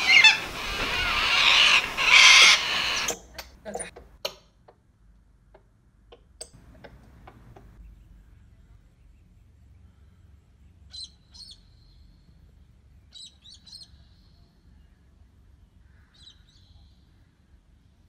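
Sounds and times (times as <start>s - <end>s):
low steady background rumble: 0.0s - 18.0s
faint bird chirps: 7.8s - 17.7s.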